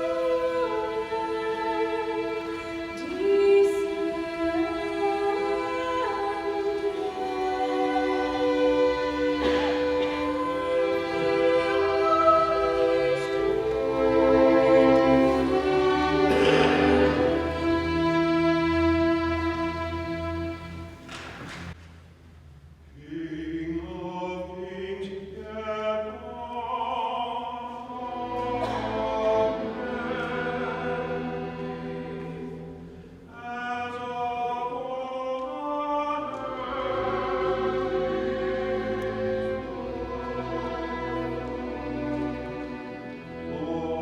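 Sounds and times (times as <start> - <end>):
choir singing sacred music: 0.0 - 21.2, 23.0 - 44.0
orchestral accompaniment: 0.0 - 21.8, 27.9 - 34.3, 35.8 - 44.0.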